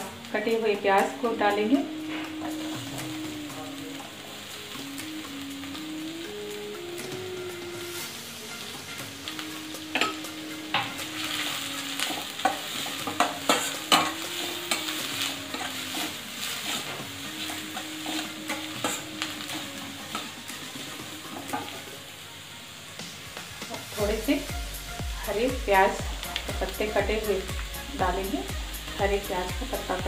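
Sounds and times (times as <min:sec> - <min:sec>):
vegetables sizzling in hot oil: 0:00.0 - 0:30.0
metal spatula scraping a pan: 0:12.0 - 0:20.4.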